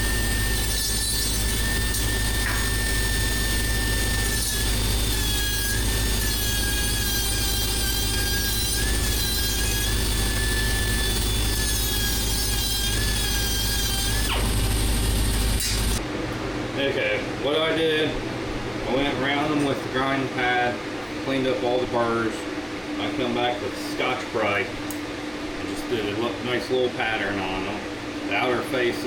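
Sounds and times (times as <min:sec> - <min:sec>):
angle grinder on steel: 0:00.0 - 0:16.0.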